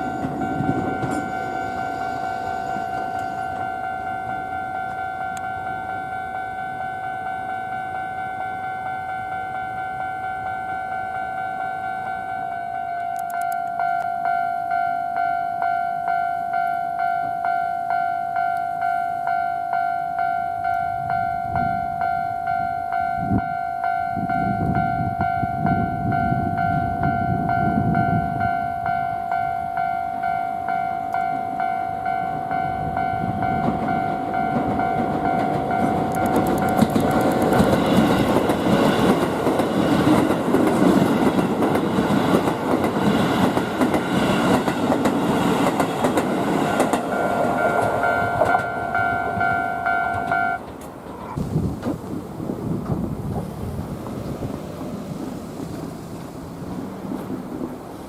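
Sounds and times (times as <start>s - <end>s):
train clattering over rail joints: 0.0s - 5.7s, 32.6s - 58.0s
level-crossing warning bell: 0.0s - 50.8s
electric train passing: 0.0s - 58.0s.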